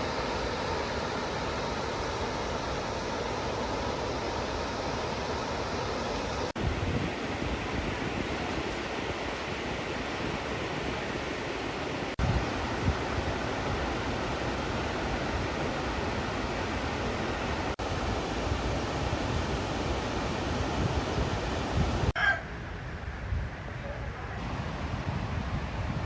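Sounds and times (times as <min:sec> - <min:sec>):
waterfall rushing: 0:00.0 - 0:22.1
wind rumble on microphone: 0:06.2 - 0:26.0.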